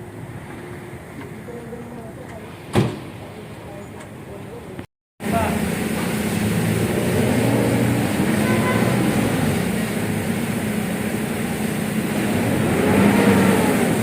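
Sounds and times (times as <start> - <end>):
vehicle engine revving: 5.2 - 14.0.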